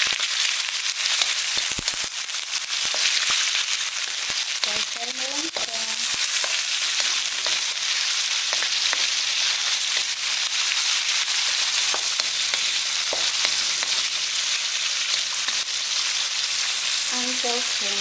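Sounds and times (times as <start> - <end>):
food sizzling in a wok: 0.0 - 18.0.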